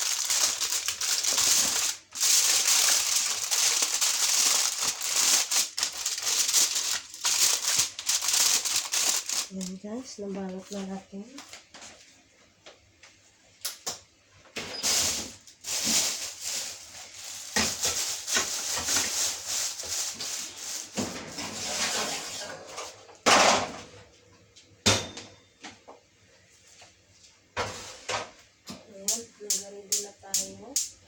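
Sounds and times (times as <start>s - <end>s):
aluminium foil crinkling: 0.0s - 11.6s, 14.9s - 21.0s.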